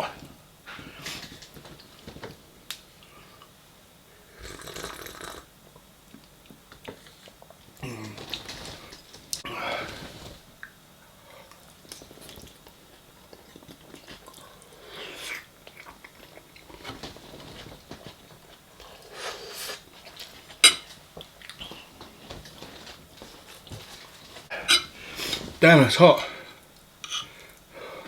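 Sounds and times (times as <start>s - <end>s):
breathing: 0.7s - 1.3s, 9.5s - 10.3s, 26.2s - 28.0s
chewing and eating: 4.5s - 25.5s
cutlery clinking on plate: 20.6s - 21.0s.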